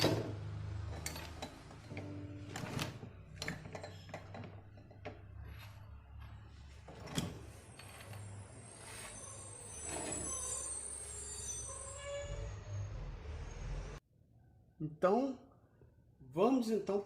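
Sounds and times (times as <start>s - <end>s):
tools and metal parts clicking: 0.0s - 5.6s.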